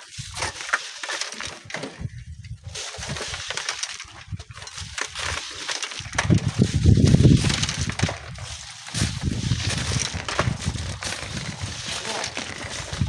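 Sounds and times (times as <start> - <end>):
sand and stones crackling: 0.0 - 13.0
wind buffeting microphone: 1.9 - 3.4, 6.0 - 13.0.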